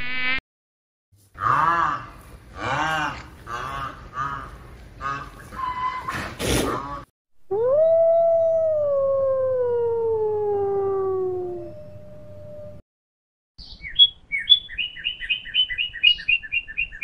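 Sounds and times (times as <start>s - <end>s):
wolf howling: 7.5s - 12.0s.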